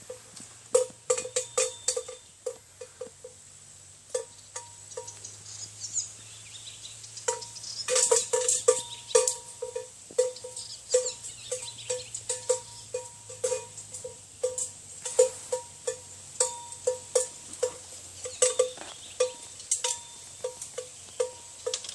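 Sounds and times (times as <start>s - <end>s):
livestock bells clanking: 0.0s - 3.4s, 4.1s - 5.4s, 7.2s - 21.9s.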